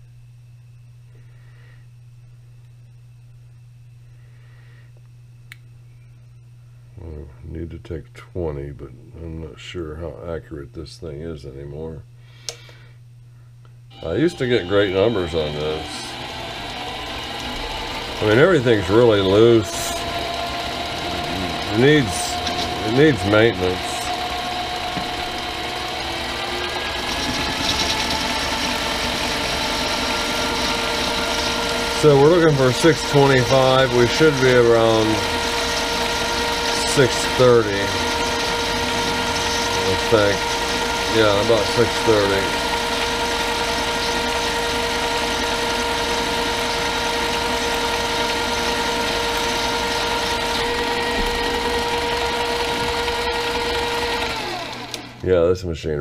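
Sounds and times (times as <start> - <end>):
lathe motor whine: 13.9 - 55.5.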